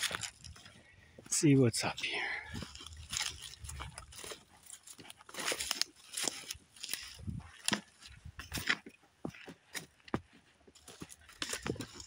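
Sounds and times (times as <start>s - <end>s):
footsteps through undergrowth: 0.0s - 12.0s
twigs snapping: 2.6s - 8.8s.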